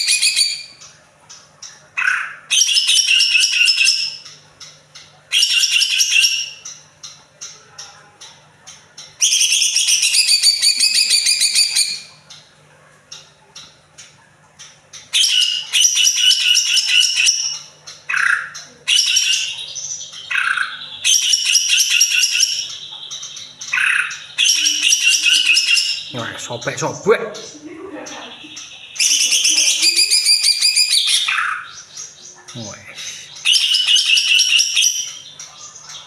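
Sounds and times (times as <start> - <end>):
bird singing high trilled phrases: 0.0 - 8.3, 9.0 - 12.3, 14.9 - 36.0.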